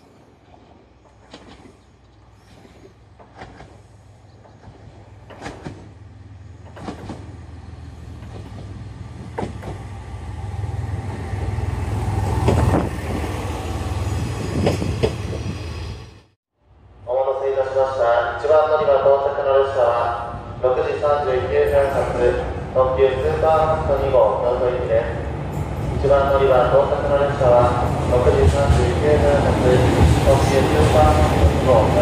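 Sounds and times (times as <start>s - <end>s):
diesel train rumble: 0.0s - 17.1s, 18.9s - 32.0s
wheels clacking over rail joints: 2.6s - 6.0s, 6.6s - 7.4s, 8.1s - 10.0s.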